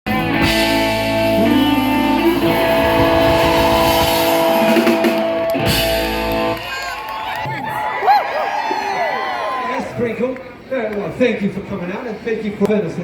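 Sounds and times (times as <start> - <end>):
guitar playing held chords: 0.1 - 6.6
live band music: 0.1 - 7.0.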